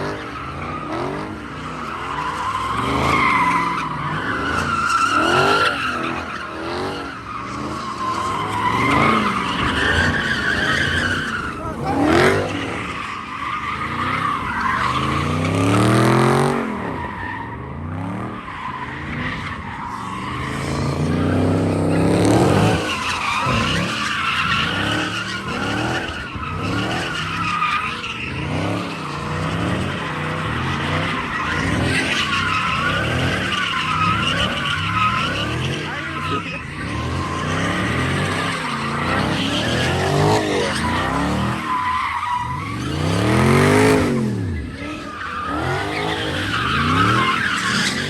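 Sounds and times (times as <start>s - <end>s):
car engines revving: 0.0s - 48.0s
tires squealing: 0.0s - 48.0s.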